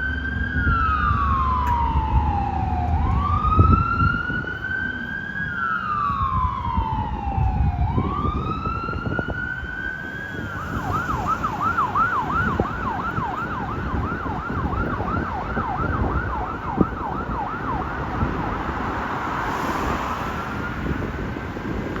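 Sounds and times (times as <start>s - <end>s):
engine and road rumble: 0.0s - 22.0s
fire engine siren wailing: 0.0s - 22.0s.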